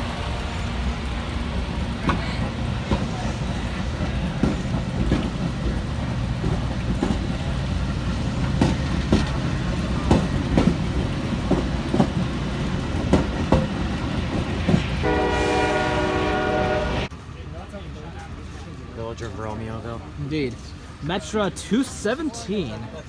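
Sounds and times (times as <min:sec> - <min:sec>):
train wheels clicking over rails: 0:00.0 - 0:16.0
train horn: 0:15.0 - 0:17.1.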